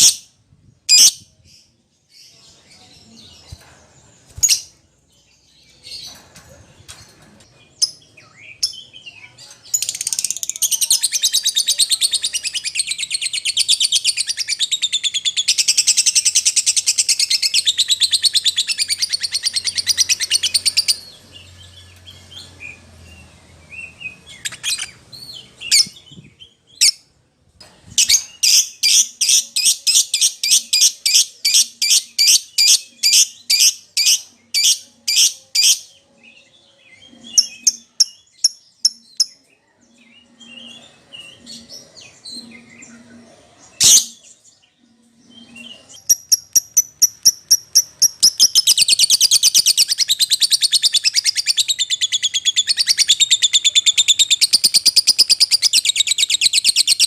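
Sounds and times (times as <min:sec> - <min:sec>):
lovebird chirping and trilling: 0:00.9 - 0:01.2, 0:23.8 - 0:26.2, 0:37.0 - 0:39.4, 0:45.3 - 0:57.0.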